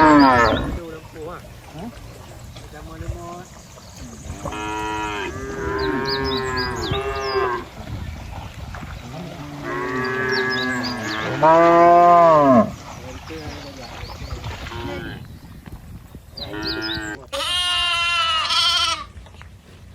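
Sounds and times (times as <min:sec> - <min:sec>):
cattle mooing: 0:00.0 - 0:00.8, 0:04.4 - 0:07.7, 0:09.0 - 0:12.8, 0:16.4 - 0:19.1.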